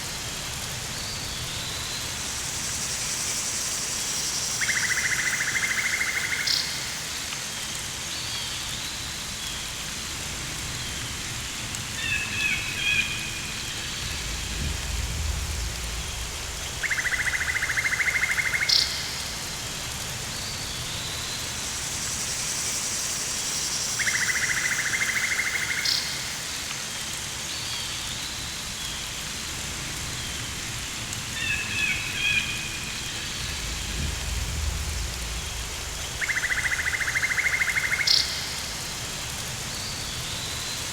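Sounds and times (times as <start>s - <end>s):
steady rain-like hiss: 0.0s - 40.9s
low rumbles: 13.4s - 17.5s, 32.7s - 36.9s.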